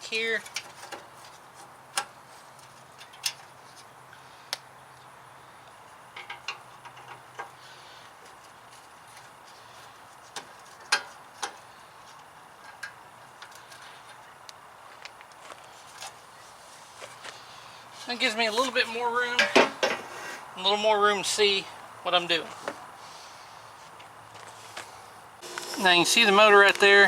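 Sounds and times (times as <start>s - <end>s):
hand tools clicking and tapping: 6.2s - 7.6s, 10.3s - 15.4s.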